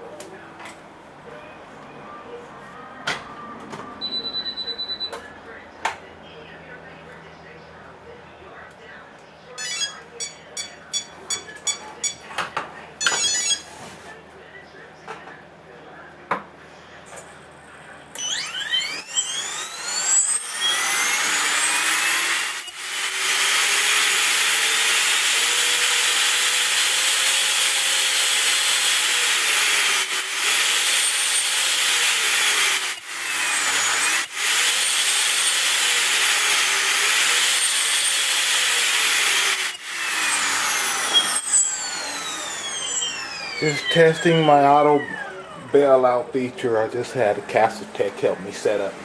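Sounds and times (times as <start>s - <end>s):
rc helicopter motor whining: 18.2s - 45.8s.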